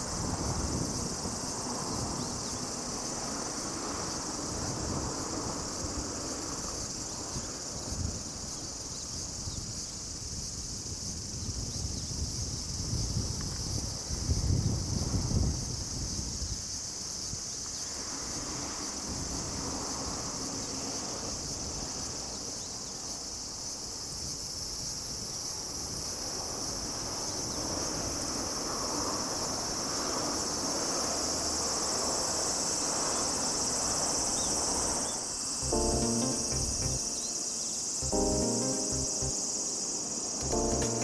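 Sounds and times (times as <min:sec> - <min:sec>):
insects chirring: 0:29.8 - 0:41.0.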